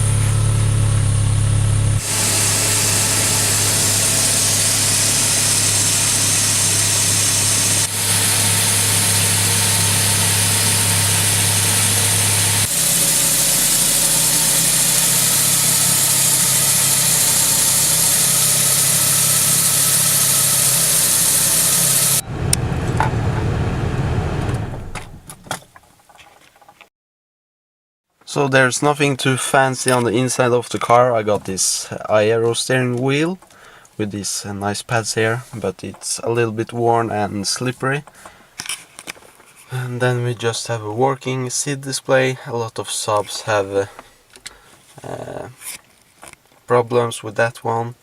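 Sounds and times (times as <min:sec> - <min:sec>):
car engine idling: 0:00.0 - 0:25.4
rough uneven engine sound: 0:00.0 - 0:25.4.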